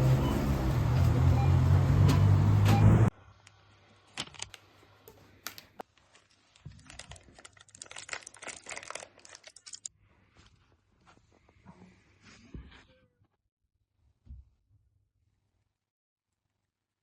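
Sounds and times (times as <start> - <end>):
light clicks and crinkling: 4.2 - 9.9.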